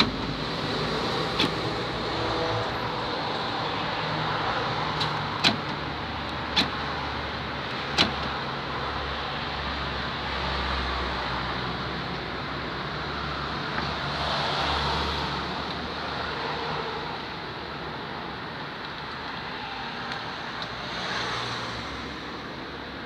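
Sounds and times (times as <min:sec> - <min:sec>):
car door lock clicking: 0:05.0 - 0:06.8, 0:07.9 - 0:08.4.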